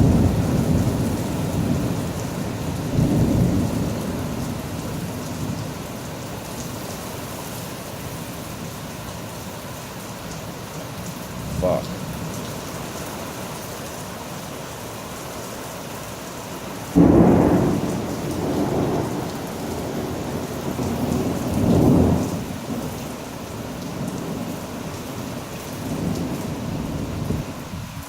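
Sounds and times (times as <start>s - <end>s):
thunderclap rumbling: 0.0s - 5.8s, 17.0s - 28.0s
heavy rain pouring: 0.0s - 28.0s.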